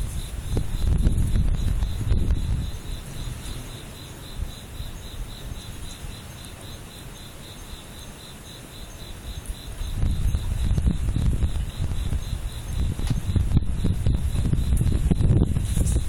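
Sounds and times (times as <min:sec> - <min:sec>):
wind buffeting microphone: 0:00.0 - 0:06.5, 0:09.2 - 0:16.0
crickets chirping: 0:00.0 - 0:16.0.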